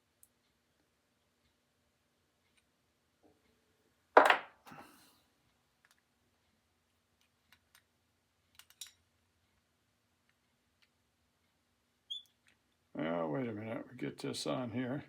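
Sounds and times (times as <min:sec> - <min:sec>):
metal parts clunk on workbench: 0:04.2 - 0:04.5
light clicks of metal parts: 0:08.5 - 0:09.1.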